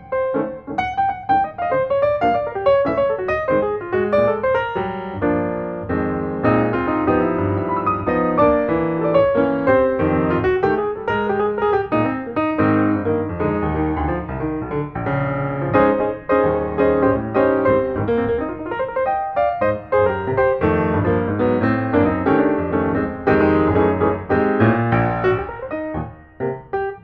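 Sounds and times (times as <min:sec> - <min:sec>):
piano music: 0:00.0 - 0:27.0.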